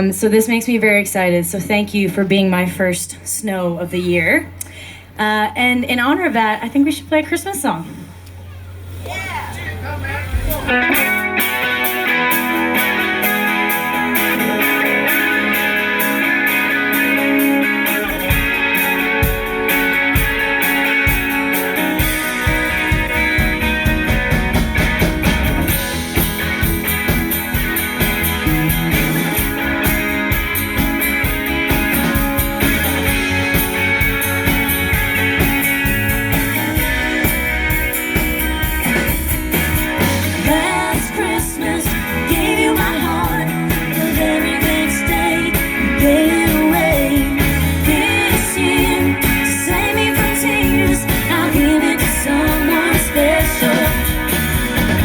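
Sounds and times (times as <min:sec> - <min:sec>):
guitar: 0:00.0 - 0:55.0
live band playing: 0:05.9 - 0:55.0
person singing: 0:40.3 - 0:55.0.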